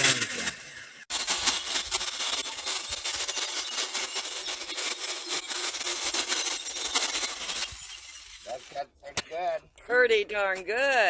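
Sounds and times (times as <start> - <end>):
electric chainsaw cutting log: 0.0 - 8.6.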